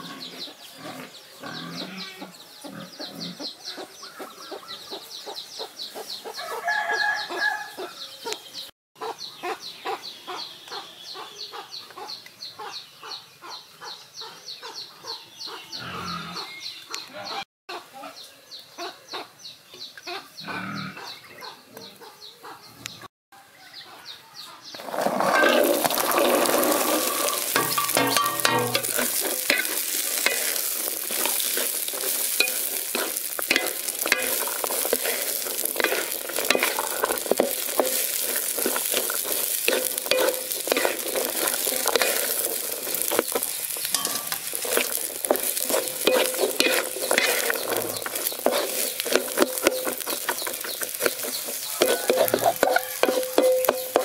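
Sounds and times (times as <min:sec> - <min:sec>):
corn kernels sizzling in oil: 0:24.6 - 0:54.0
wooden spatula scraping wok: 0:24.7 - 0:54.0.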